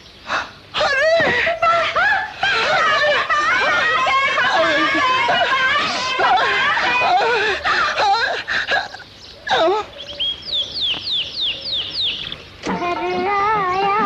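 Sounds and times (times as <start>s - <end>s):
long wavering bird call: 8.4s - 13.9s
high falling bird chirps: 8.9s - 13.9s.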